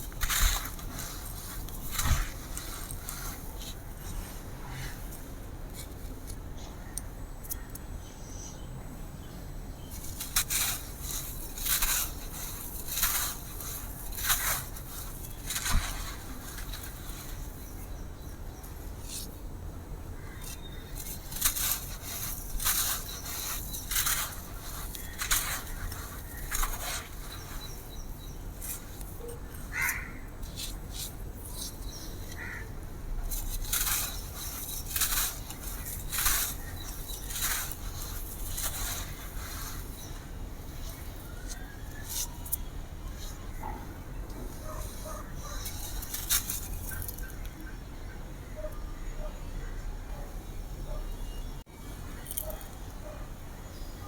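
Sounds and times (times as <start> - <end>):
dry sand-cement crunching by hand: 0.0 - 6.4, 9.9 - 19.4, 20.4 - 42.6, 44.5 - 47.4.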